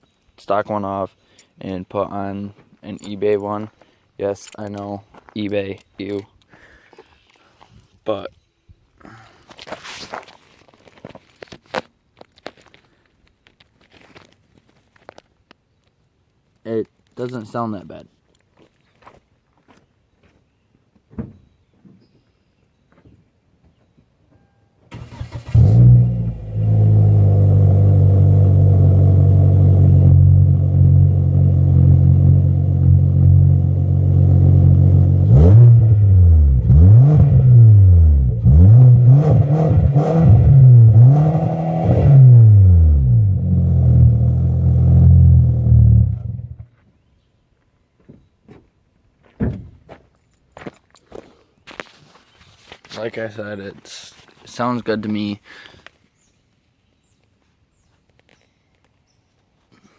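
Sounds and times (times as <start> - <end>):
car engine idling and revving: 25.0 - 46.6.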